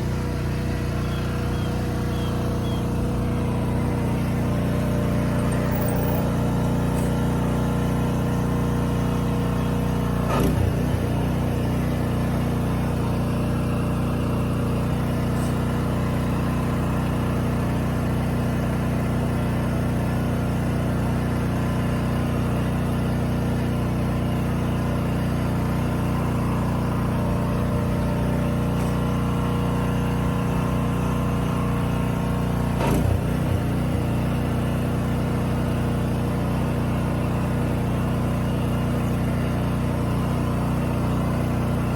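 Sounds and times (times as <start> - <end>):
motor humming: 0.0 - 18.2, 23.6 - 34.7.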